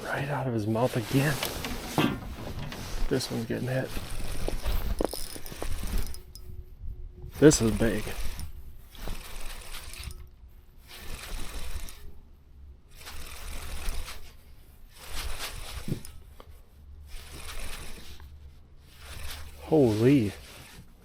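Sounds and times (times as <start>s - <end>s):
fishing reel cranking: 3.2s - 6.5s, 7.4s - 12.1s, 12.9s - 16.2s, 17.1s - 18.2s, 18.9s - 19.6s
low rumble: 6.1s - 7.4s.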